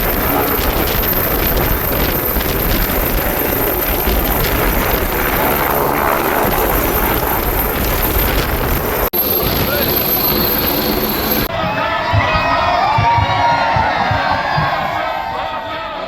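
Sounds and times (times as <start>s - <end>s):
helicopter rotor and engine: 0.0s - 11.5s.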